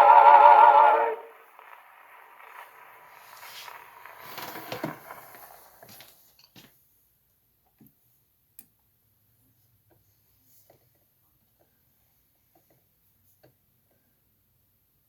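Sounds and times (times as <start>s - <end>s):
record surface hiss and crackle: 0.0s - 8.6s.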